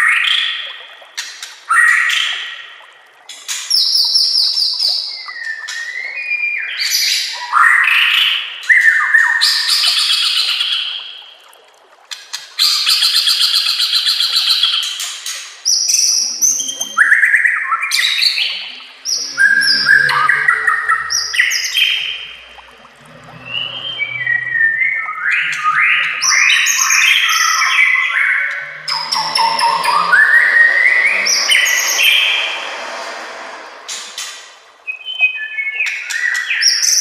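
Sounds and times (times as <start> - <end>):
bird singing whistled phrases: 15.9 - 22.7.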